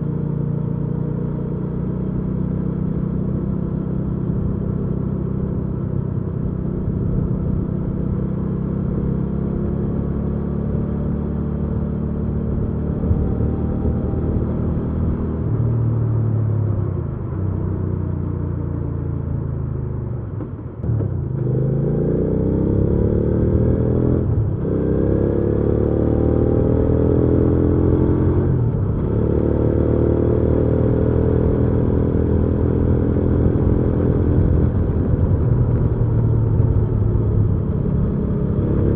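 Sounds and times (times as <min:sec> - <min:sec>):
motorcycle engine revving: 0:20.8 - 0:38.9.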